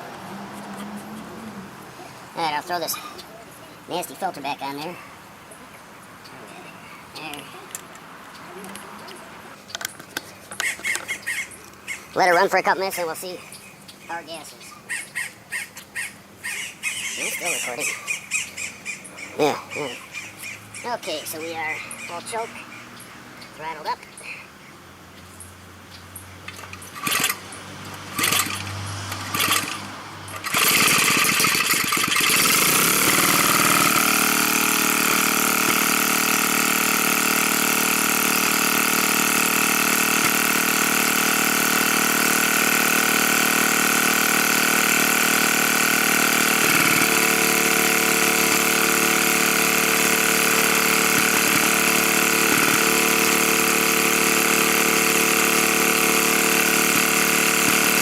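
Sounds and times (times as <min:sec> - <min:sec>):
small engine running: 0:15.5 - 0:24.4, 0:26.1 - 0:58.0
starter cord pulls: 0:26.5 - 0:58.0.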